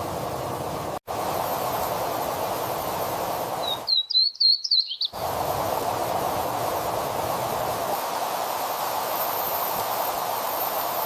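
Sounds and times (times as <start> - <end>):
songbird warble: 3.6 - 5.2.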